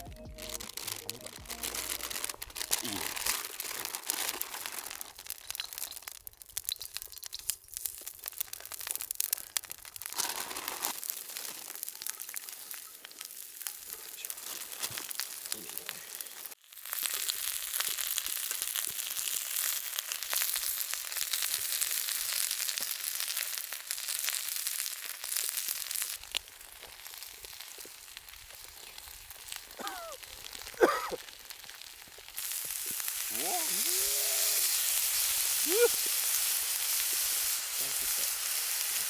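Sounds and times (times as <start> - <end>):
meat sizzling on a grill: 0.4 - 39.0.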